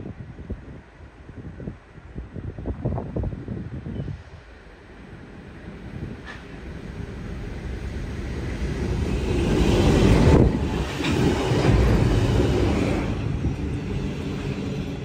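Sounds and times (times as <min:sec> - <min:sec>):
passenger train passing: 0:03.7 - 0:15.0.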